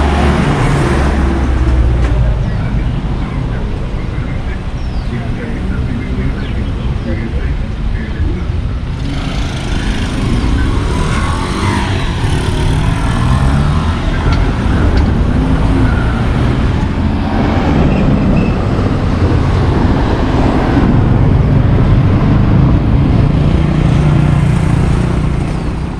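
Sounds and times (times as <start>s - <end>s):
car engines running: 0.0s - 25.9s
roadway rumble: 0.0s - 25.9s.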